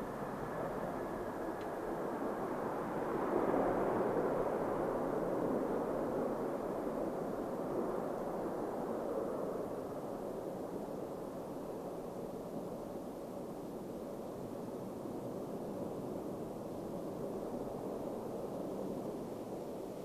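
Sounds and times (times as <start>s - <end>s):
jet airliner passing: 0.0s - 10.1s.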